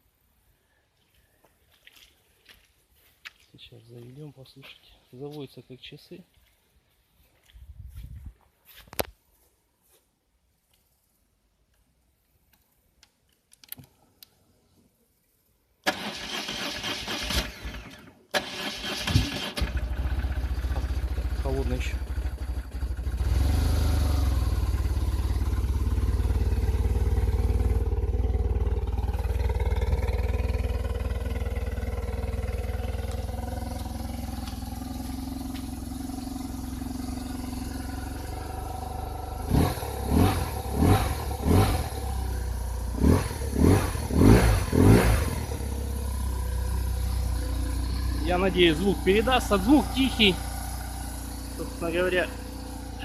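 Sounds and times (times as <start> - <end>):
engine revving: 15.9 - 53.0
motorcycle engine idling: 19.6 - 53.0.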